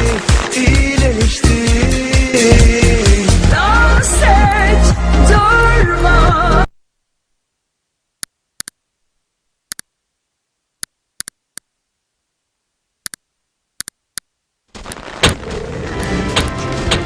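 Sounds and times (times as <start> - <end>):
loud hit: 2.4 - 3.4
sharp isolated clicks: 9.7 - 9.9.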